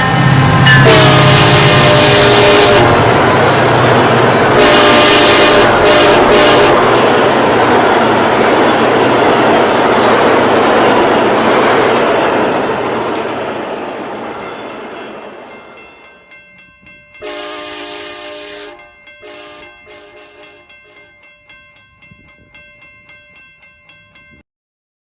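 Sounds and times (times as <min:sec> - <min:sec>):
train horn blasts: 0:00.0 - 0:03.3, 0:04.4 - 0:07.4, 0:17.2 - 0:21.0
train rushing on bridge: 0:00.0 - 0:24.4.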